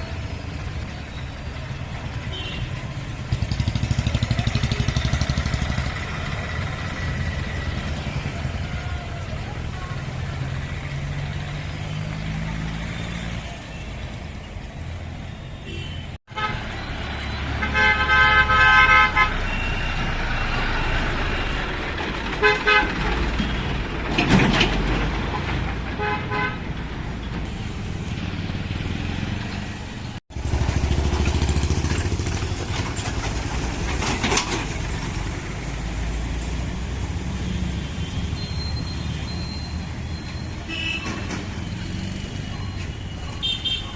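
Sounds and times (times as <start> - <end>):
tractor engine: 0.0 - 15.3, 16.2 - 38.4
road traffic engines: 0.0 - 43.9
vehicle horns honking: 2.2 - 2.9, 15.6 - 20.8, 22.4 - 23.6, 25.2 - 26.7, 37.4 - 41.4, 43.0 - 43.9.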